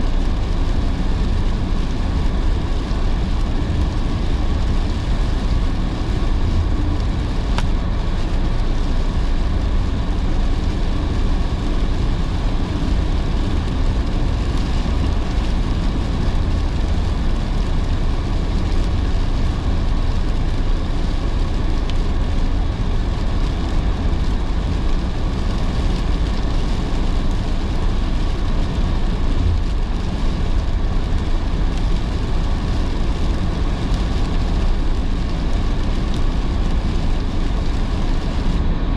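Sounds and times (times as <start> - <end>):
low road rumble: 0.0 - 38.9
rain on car: 0.0 - 38.9
tyres hissing on wet road: 0.0 - 38.9.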